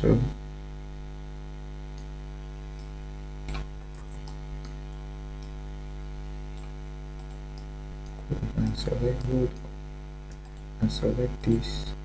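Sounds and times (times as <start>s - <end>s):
electrical mains hum: 0.0s - 12.0s
computer mouse clicks: 6.6s - 8.2s, 10.3s - 10.7s.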